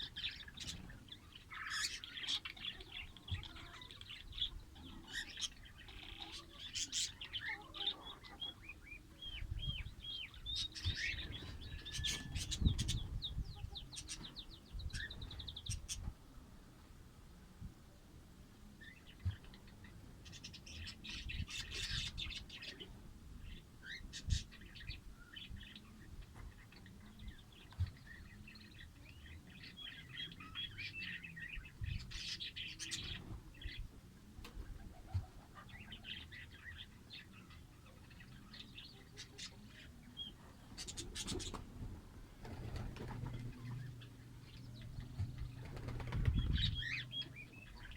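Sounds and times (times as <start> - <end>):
lovebirds chirping: 34.8 - 47.9.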